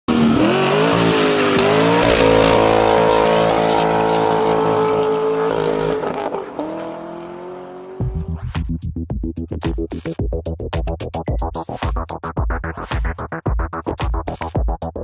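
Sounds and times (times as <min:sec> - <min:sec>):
car engine accelerating: 0:00.1 - 0:08.5.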